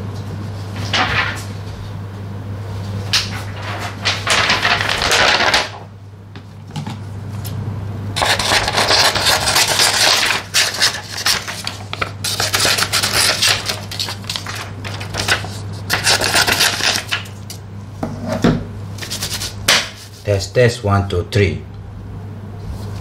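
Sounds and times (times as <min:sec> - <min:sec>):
paper rustling and crackling: 0:00.7 - 0:01.6, 0:03.2 - 0:05.9, 0:08.2 - 0:17.6
scissors snipping paper: 0:08.2 - 0:17.6.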